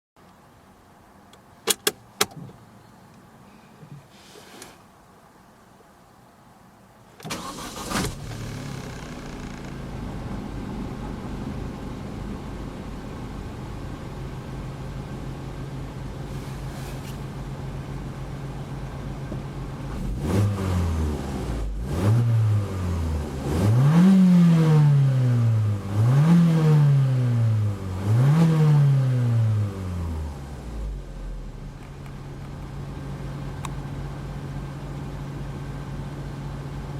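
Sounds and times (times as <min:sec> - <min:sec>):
car engine starting and idling: 0:07.0 - 0:36.9
engine revving: 0:19.9 - 0:31.4.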